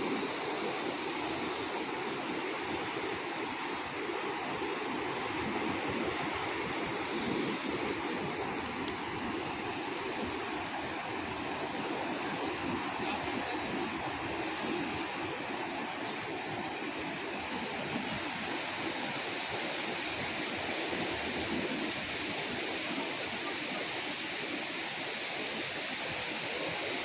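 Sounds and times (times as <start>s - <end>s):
ocean surf washing onto beach: 0.0s - 27.0s.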